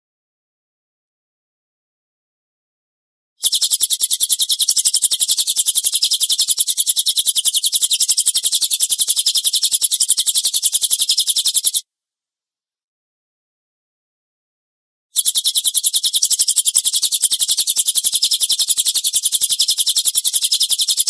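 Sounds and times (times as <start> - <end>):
songbird rapid chattering call: 3.4 - 11.8, 15.2 - 21.0.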